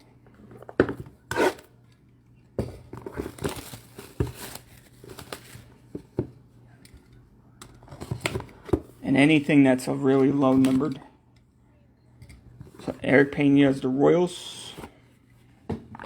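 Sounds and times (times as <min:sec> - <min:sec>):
packaging crinkling and tearing: 0:03.1 - 0:05.8.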